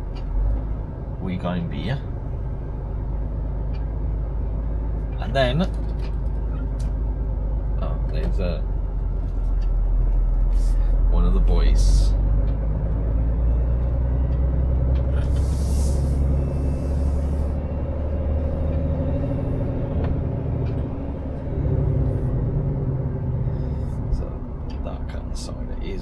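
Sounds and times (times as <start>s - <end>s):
lorry engine running: 0.0s - 26.0s
air brake hiss: 15.2s - 17.4s.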